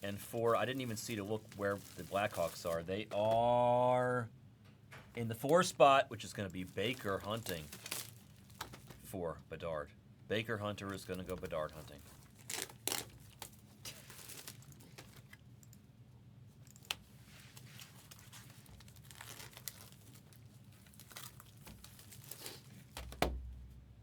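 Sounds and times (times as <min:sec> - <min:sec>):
packaging tearing and crinkling: 0:00.2 - 0:03.4, 0:06.3 - 0:09.0, 0:10.8 - 0:15.4, 0:16.8 - 0:23.2.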